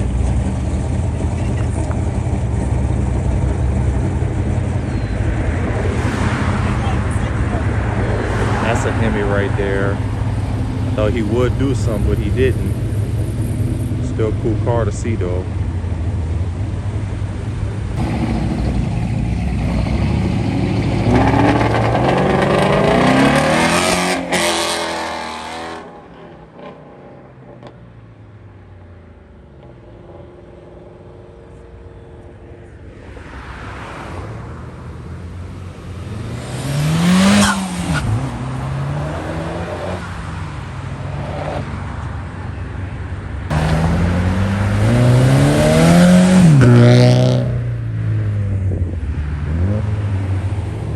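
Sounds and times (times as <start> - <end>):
cars accelerating and revving: 0.0 - 28.0, 29.4 - 50.9
car passing by: 5.5 - 10.0, 32.9 - 40.5.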